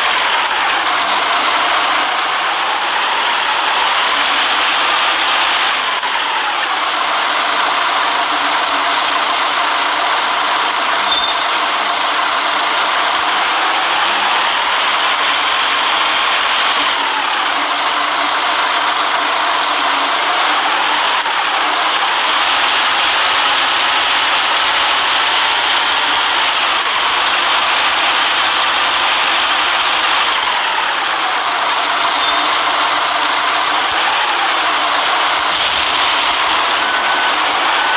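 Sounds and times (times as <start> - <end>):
bus engine and road noise: 0.0 - 37.9
tyres hissing on wet road: 0.0 - 37.9
faint high squeak: 8.4 - 12.6, 17.4 - 19.6, 31.2 - 37.9.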